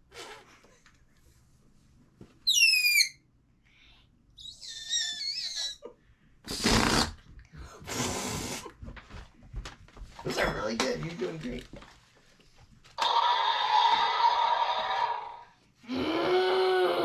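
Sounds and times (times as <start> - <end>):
wavering whistle: 2.5 - 3.2.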